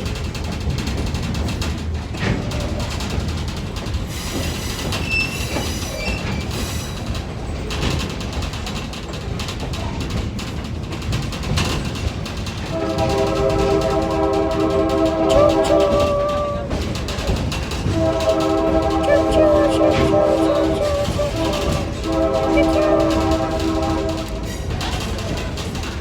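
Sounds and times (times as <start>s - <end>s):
train rumbling and rattling: 0.0s - 26.0s
train horn chord: 12.7s - 16.9s, 17.8s - 24.7s.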